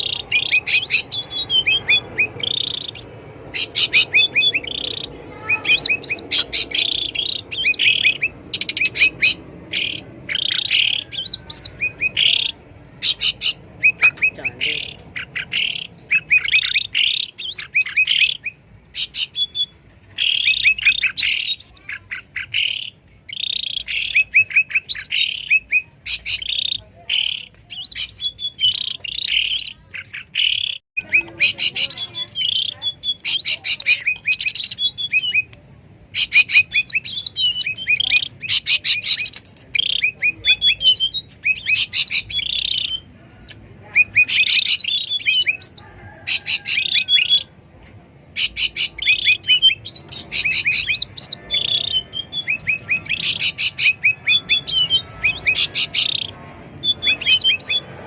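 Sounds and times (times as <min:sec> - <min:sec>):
birds singing and calling: 0:00.0 - 0:58.0.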